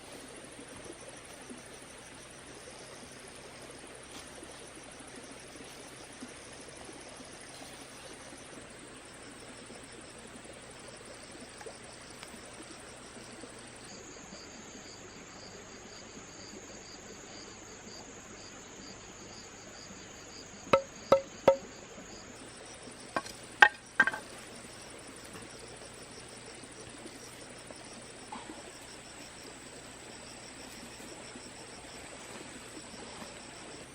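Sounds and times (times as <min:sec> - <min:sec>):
high-pitched insect chorus: 0:00.0 - 0:33.9
hollow ringing knocks: 0:20.7 - 0:21.7, 0:23.2 - 0:24.3.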